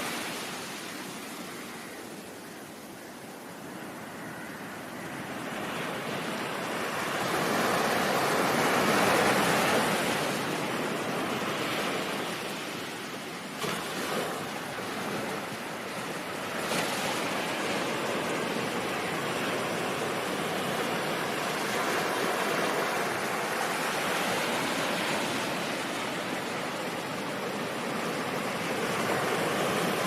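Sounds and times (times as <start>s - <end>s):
waves breaking with splashes: 6.1s - 30.0s
ocean wave rushing: 13.4s - 30.0s.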